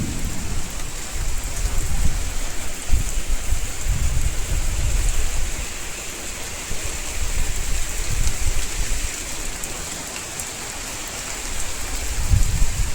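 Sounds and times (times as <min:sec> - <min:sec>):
low rumble: 0:00.0 - 0:02.4
heavy rain pouring: 0:00.0 - 0:12.9.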